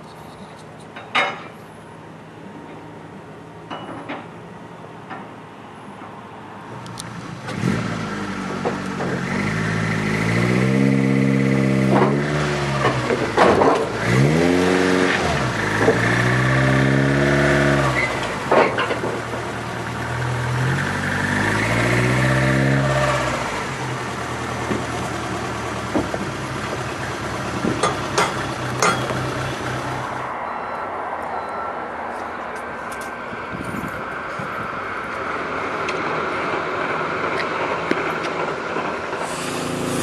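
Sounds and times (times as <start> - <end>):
car engine revving: 7.4 - 30.2, 39.2 - 40.0.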